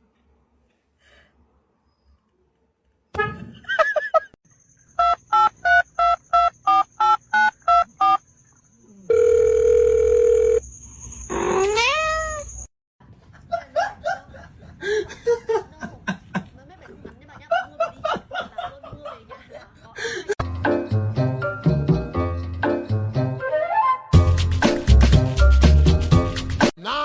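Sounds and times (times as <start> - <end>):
electronic beeps: 4.7 - 9.2
cat-like cry: 11.3 - 12.6.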